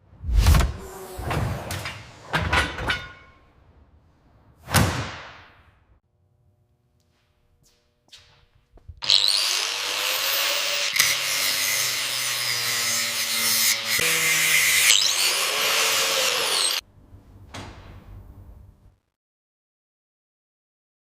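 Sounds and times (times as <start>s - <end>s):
power tool running: 9.0s - 16.8s.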